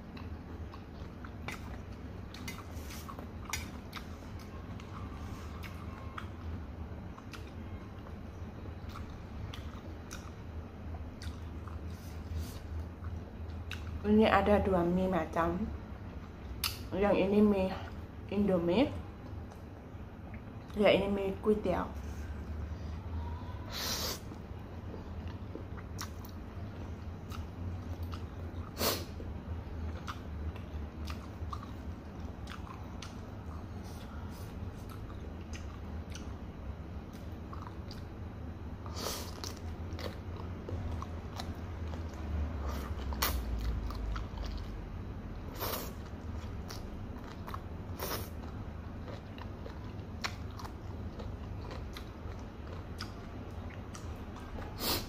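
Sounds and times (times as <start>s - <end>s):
person chewing and slurping noodles: 0.0s - 6.3s, 8.8s - 14.0s, 38.8s - 44.8s, 45.6s - 55.0s
steady low hum: 0.0s - 55.0s.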